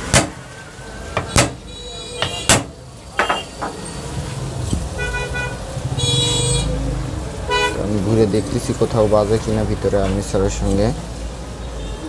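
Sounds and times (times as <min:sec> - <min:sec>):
sharp knocks: 0:00.0 - 0:00.4, 0:01.2 - 0:01.6, 0:02.2 - 0:03.8
street traffic rumble: 0:00.0 - 0:12.0
vehicle horn: 0:01.6 - 0:02.5, 0:05.0 - 0:06.7, 0:07.5 - 0:07.8.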